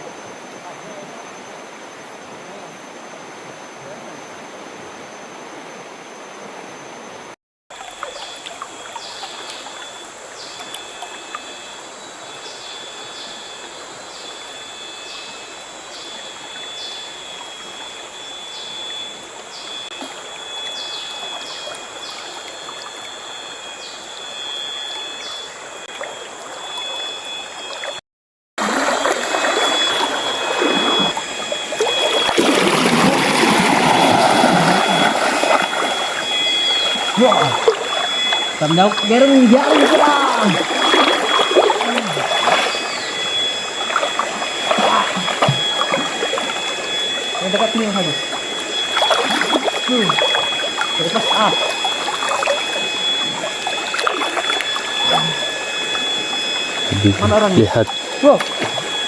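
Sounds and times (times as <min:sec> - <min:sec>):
high whine with short calls: 0:29.3 - 0:59.0.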